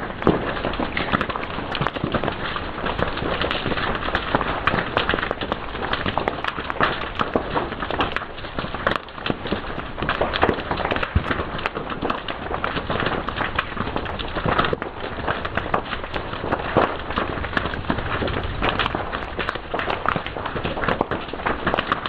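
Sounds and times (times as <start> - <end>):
fire crackling and popping: 0.0 - 22.0.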